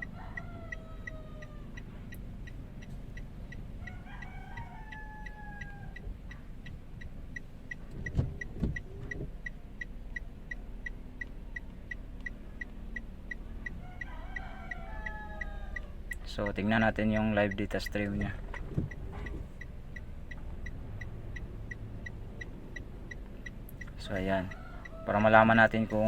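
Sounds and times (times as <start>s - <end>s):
rooster crowing: 0.0s - 2.1s, 3.8s - 6.1s, 13.6s - 16.1s, 24.3s - 25.6s
high ticking: 0.0s - 26.0s
low steady rumble: 0.0s - 26.0s
thumps: 18.4s - 19.6s.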